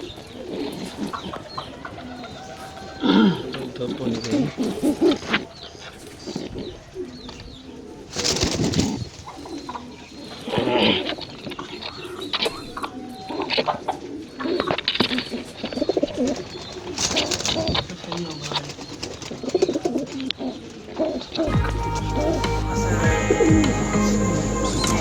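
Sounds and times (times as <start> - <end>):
pigeons cooing: 0.0 - 25.0.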